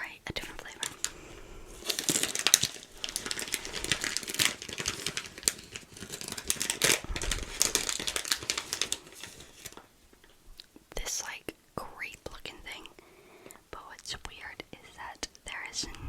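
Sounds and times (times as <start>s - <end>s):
plastic wrapper crinkling: 0.4s - 10.3s.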